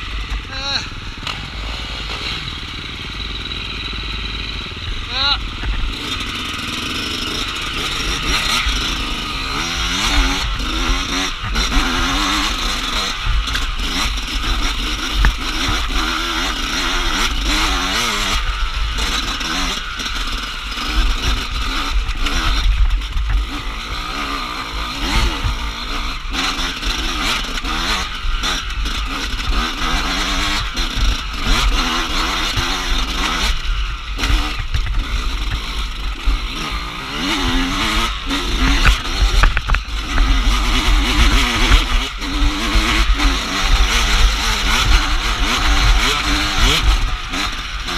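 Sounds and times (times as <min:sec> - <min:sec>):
dirt bike engine revving: 0:00.0 - 0:47.9
knocks and clatter: 0:38.6 - 0:47.6.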